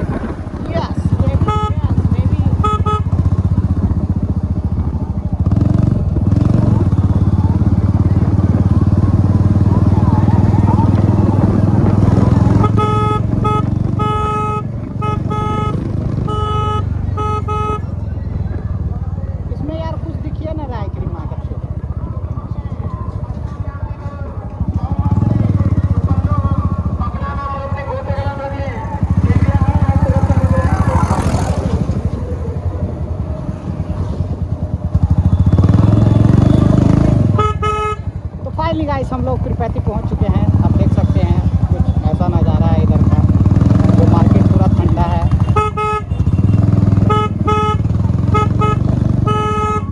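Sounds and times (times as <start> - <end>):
motorcycle engine rumble: 0.0 - 49.9
road noise: 0.0 - 49.9
vehicle horn honking: 1.3 - 3.3, 12.4 - 18.0, 35.3 - 38.2, 45.2 - 49.9.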